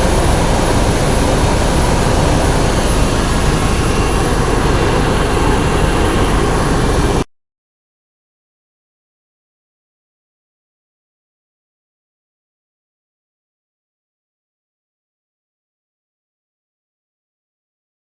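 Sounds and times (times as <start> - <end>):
helicopter engine and rotor: 0.0 - 7.3.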